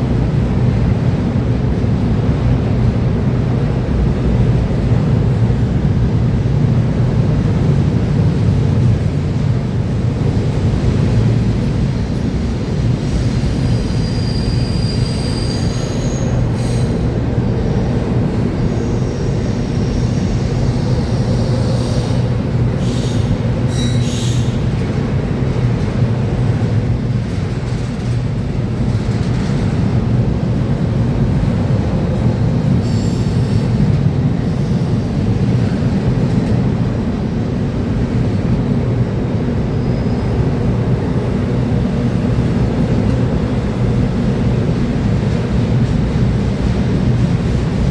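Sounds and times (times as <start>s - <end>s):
train wheels rumbling on rail: 0.0s - 47.9s
high-pitched wheel squeals: 13.0s - 17.4s, 18.3s - 24.6s.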